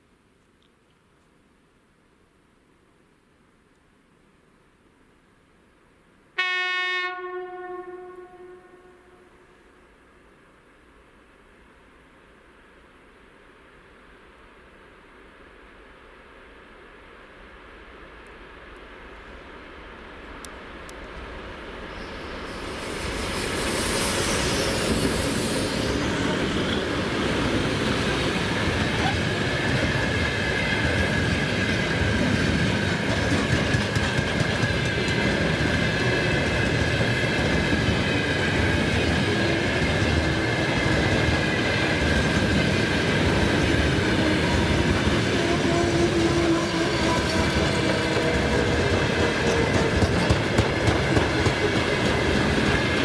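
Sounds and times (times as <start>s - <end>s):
high whine: 21.7s - 29.1s
freight train wheels clattering: 26.8s - 53.0s.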